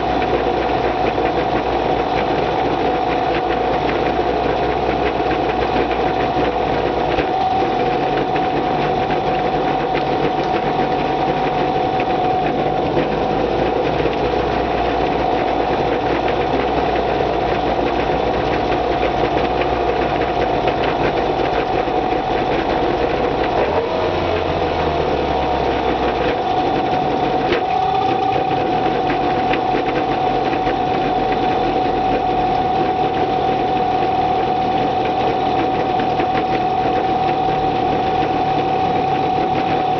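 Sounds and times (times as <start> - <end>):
outboard motor idling: 0.0 - 39.9.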